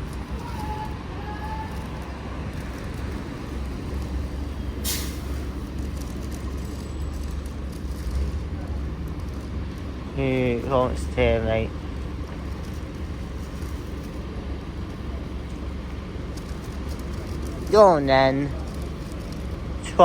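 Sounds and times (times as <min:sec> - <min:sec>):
bus engine rumbling: 0:00.0 - 0:20.0
compressed air hiss: 0:04.8 - 0:05.5.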